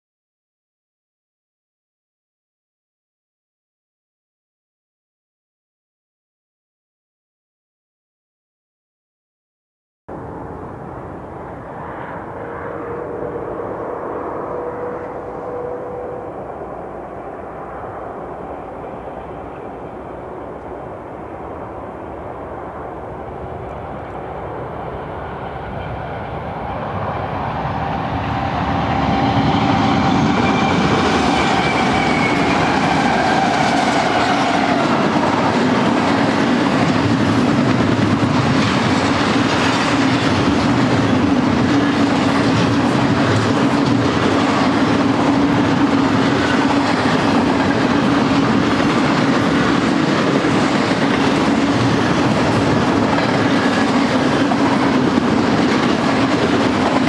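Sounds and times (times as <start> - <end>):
diesel locomotives passing: 10.1 - 57.0
wheels clattering on rails: 27.9 - 57.0.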